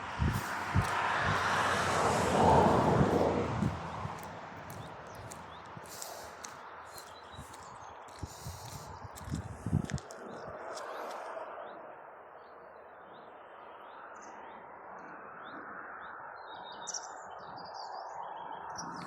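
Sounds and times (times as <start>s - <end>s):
birds chirping and twittering: 0.2s - 11.8s.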